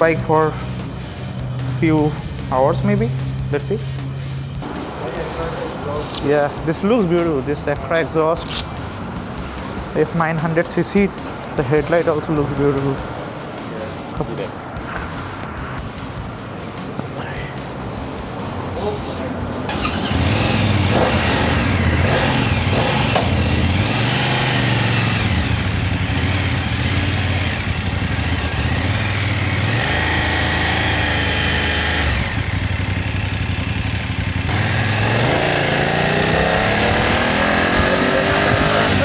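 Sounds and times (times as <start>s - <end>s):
motorcycle engine revving: 19.7s - 39.0s.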